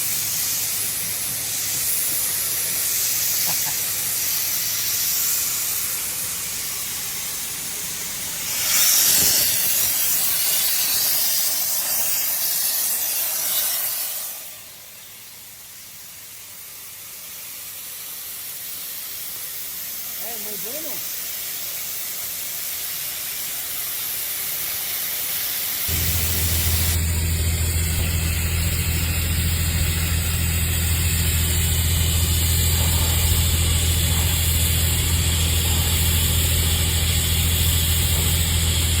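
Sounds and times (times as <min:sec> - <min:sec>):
welding hiss: 0:00.0 - 0:39.0
loud low buzz: 0:25.9 - 0:39.0.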